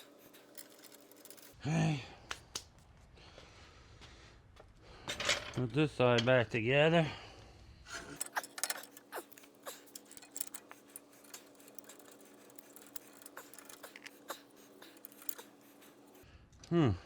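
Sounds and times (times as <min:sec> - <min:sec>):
small metal parts rattling: 0:00.0 - 0:01.6, 0:08.0 - 0:16.2.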